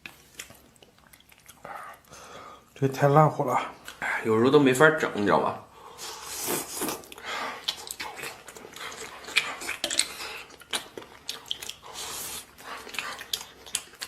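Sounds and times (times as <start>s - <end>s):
person chewing: 0.0s - 2.7s, 5.9s - 14.0s.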